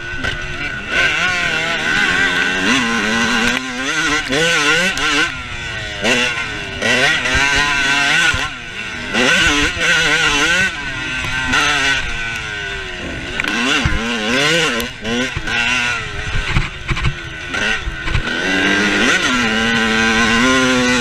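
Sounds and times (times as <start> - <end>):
motorcycle engines revving: 0.0 - 21.0.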